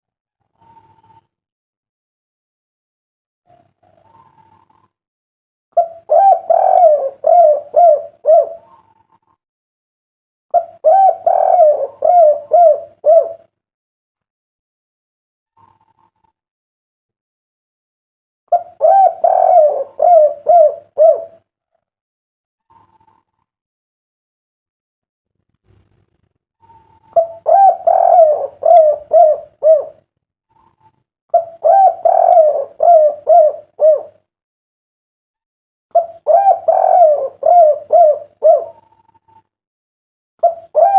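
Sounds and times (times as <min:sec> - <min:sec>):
dove cooing: 0:03.5 - 0:05.0, 0:05.8 - 0:09.4, 0:10.5 - 0:13.5, 0:18.5 - 0:21.4, 0:26.6 - 0:34.2, 0:35.9 - 0:39.5, 0:40.4 - 0:40.9.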